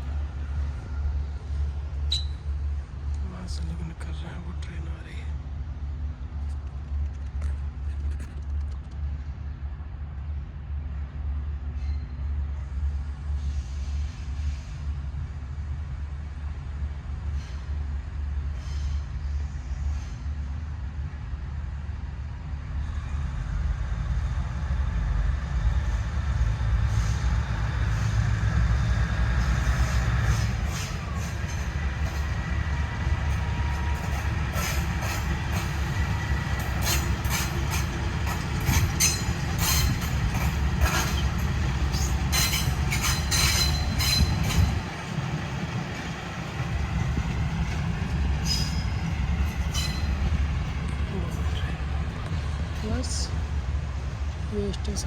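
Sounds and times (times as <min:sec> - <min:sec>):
diesel locomotive rumble: 0:00.0 - 0:55.0
wheel squeals: 0:02.1 - 0:02.4.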